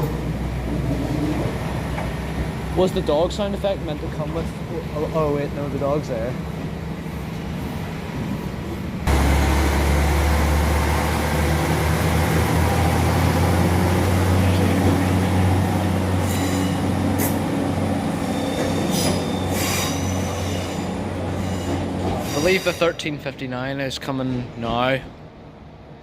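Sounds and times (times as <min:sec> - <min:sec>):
train engine hum: 0:00.0 - 0:26.0
wheel or brake squeals: 0:16.2 - 0:17.0, 0:18.1 - 0:23.1.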